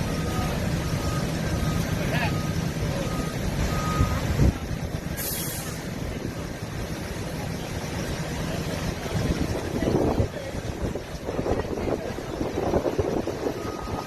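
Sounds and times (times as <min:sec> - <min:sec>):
short beeps: 0:00.0 - 0:04.3
diesel engine rumbling: 0:00.0 - 0:14.0
air brakes hissing: 0:05.2 - 0:05.9.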